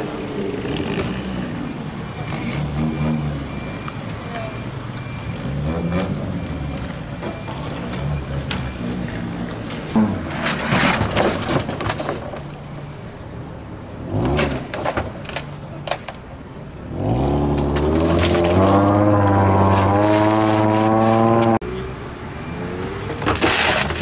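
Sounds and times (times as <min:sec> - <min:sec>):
car engine revving: 0:16.9 - 0:21.9.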